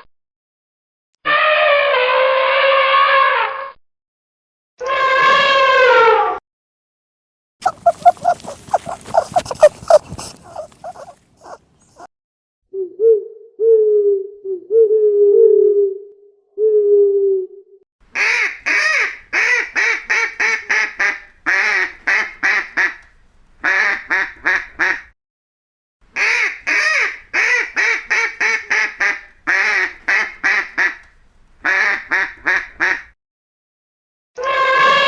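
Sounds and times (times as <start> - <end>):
waterfowl quacking: 7.6 - 12.1, 18.2 - 23.0, 26.2 - 31.0, 31.6 - 33.0.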